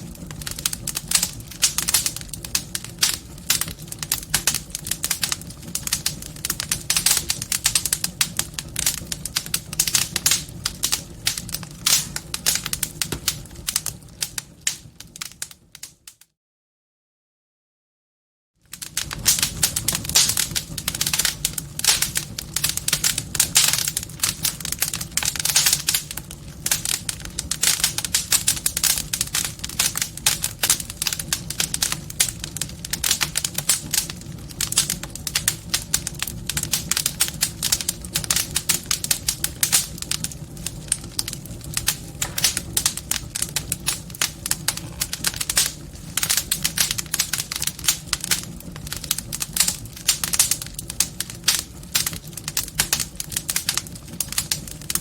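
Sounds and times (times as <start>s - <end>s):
low rumble of flames: 0.0s - 16.2s, 18.6s - 55.0s
wood fire crackling: 0.0s - 16.2s, 18.6s - 55.0s.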